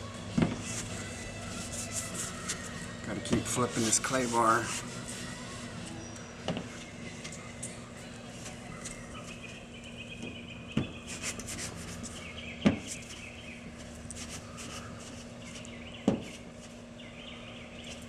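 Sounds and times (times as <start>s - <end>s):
clay bar squeaking on car paint: 0.6s - 6.1s.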